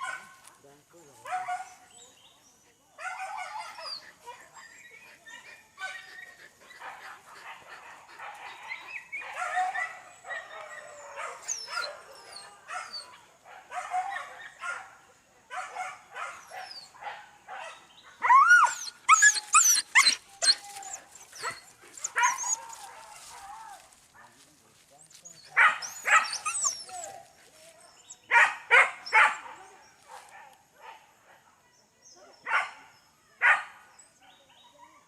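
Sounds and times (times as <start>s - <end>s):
dogs barking: 0.0s - 0.5s, 1.2s - 1.9s, 3.0s - 24.4s, 25.5s - 27.3s, 28.2s - 31.4s, 32.4s - 34.4s
dogs yelping: 3.0s - 14.8s, 15.6s - 23.8s, 25.5s - 27.3s.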